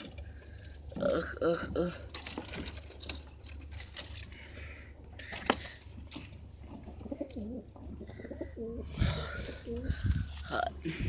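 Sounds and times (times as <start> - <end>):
steady low hum: 0.0 - 11.0
pigeons cooing: 6.7 - 10.4.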